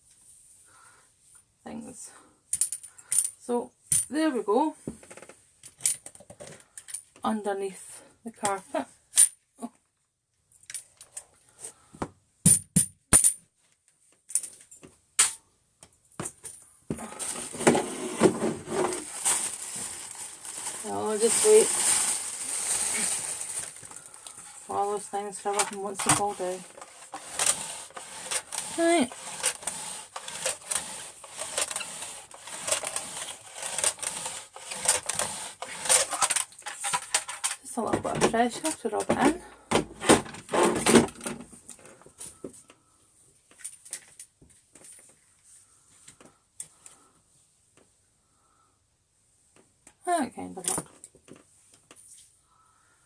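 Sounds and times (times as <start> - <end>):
rubbing and scraping on carpet: 24.4 - 36.0.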